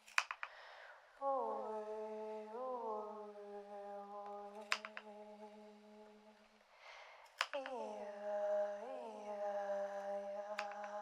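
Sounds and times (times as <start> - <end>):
sharp click: 0.0 - 0.5, 4.6 - 5.0, 7.4 - 7.8, 10.6 - 11.0
person humming a held note: 1.2 - 6.4.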